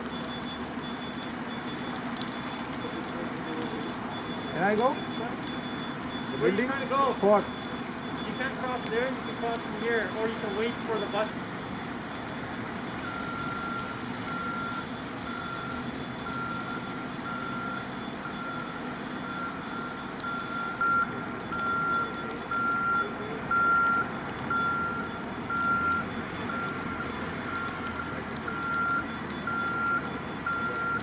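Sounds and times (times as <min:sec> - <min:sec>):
truck engine hum: 0:00.0 - 0:31.0
truck reversing alarm beeping: 0:00.0 - 0:31.0.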